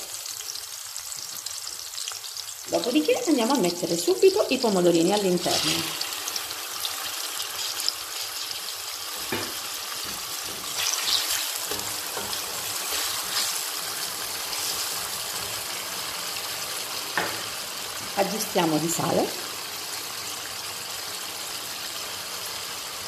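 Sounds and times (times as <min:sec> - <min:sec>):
vegetables sizzling in oil: 0:00.0 - 0:23.0
wooden spatula scraping pan: 0:09.2 - 0:15.8.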